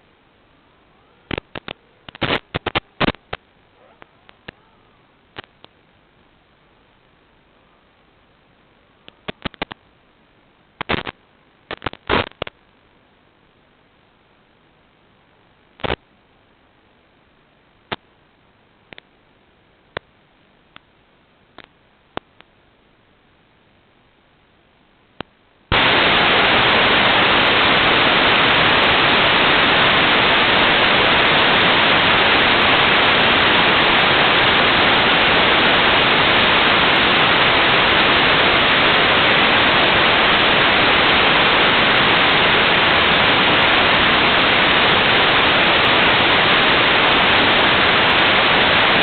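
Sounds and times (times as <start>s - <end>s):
loud static hiss: 0.0s - 49.0s
click: 9.0s - 9.8s, 21.6s - 22.5s.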